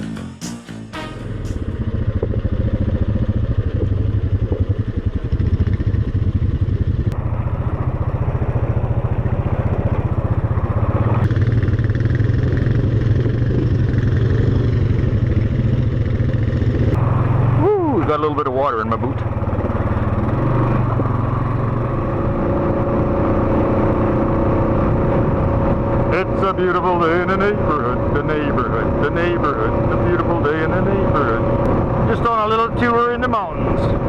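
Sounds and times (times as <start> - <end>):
guitar strums: 0.0 - 1.9
quad engine on gravel road: 1.1 - 34.0.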